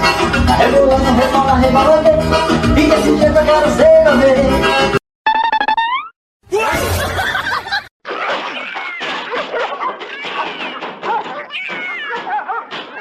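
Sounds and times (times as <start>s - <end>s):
people laughing: 6.7s - 13.0s.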